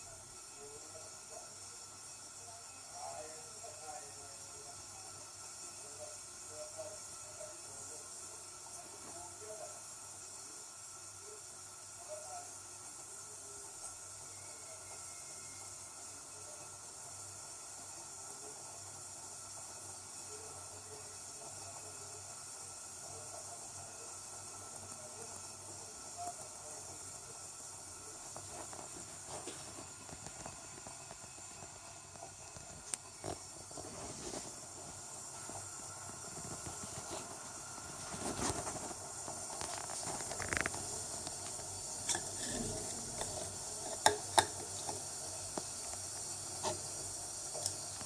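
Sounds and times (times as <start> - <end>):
kettle hissing: 0.0 - 48.0.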